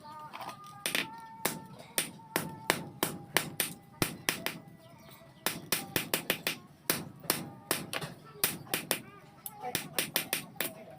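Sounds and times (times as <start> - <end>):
hammer blows on metal: 0.9 - 4.6, 5.4 - 9.1.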